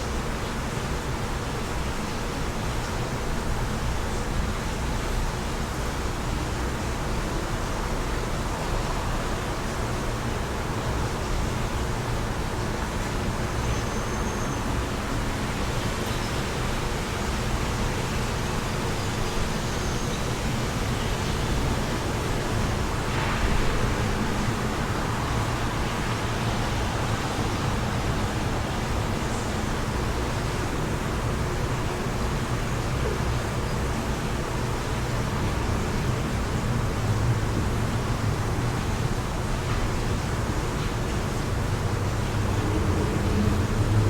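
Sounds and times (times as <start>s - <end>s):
low wind rumble: 14.7s - 39.6s
wind rushing: 22.3s - 27.0s.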